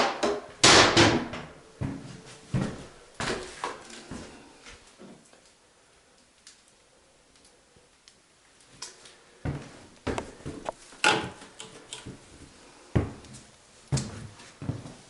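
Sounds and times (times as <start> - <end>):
footsteps on hard surface: 1.8 - 4.8, 9.4 - 10.8, 12.0 - 15.0.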